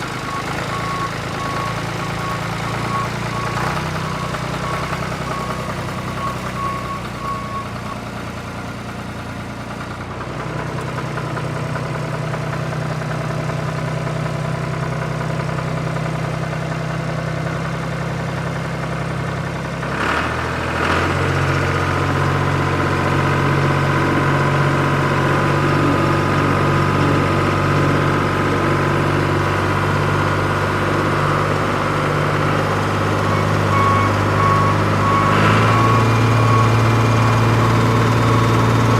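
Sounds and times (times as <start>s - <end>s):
short repeated beeps: 0.0s - 8.1s, 33.2s - 38.7s
vehicle engine running: 0.0s - 38.9s.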